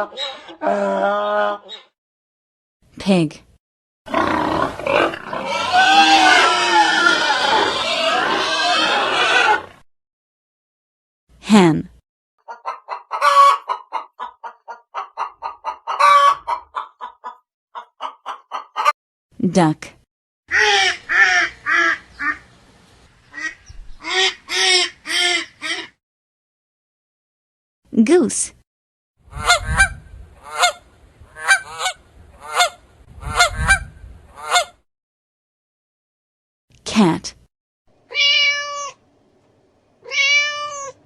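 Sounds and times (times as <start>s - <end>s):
hen cackling: 0.0s - 1.9s, 4.2s - 9.8s, 12.4s - 18.9s, 20.5s - 22.5s, 23.3s - 26.0s, 29.3s - 34.8s
hen clucking: 12.4s - 18.9s, 29.3s - 34.8s.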